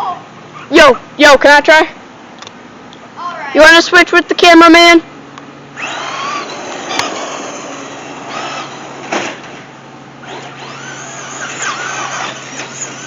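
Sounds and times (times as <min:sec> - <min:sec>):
electric rc car motor whining: 0:05.8 - 0:09.6, 0:10.2 - 0:13.0.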